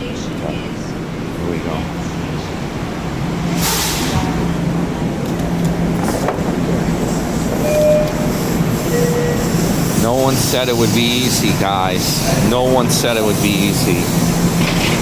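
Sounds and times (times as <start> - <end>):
train arriving rumble: 0.0 - 15.0
brief tones: 7.6 - 9.5.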